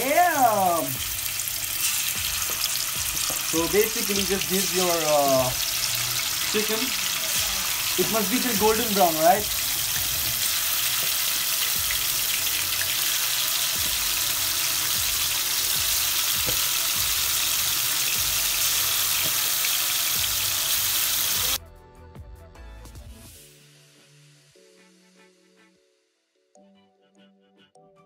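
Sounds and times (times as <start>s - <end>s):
chicken sizzling in hot oil: 0.0s - 21.6s
soft music: 0.0s - 28.0s.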